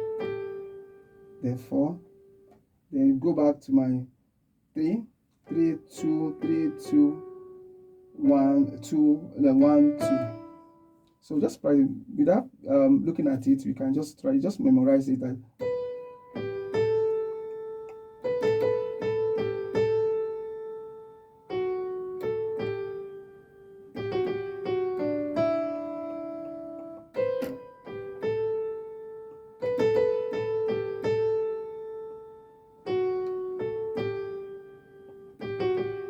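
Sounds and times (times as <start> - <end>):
piano melody: 0.0 - 2.5, 5.5 - 11.8, 15.6 - 36.0
low piano bass notes: 8.2 - 10.7.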